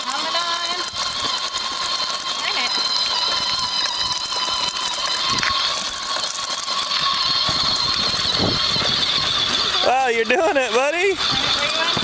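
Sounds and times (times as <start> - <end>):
electric motor whine: 0.0 - 12.0
fast mechanical clicking rattle: 0.0 - 12.0.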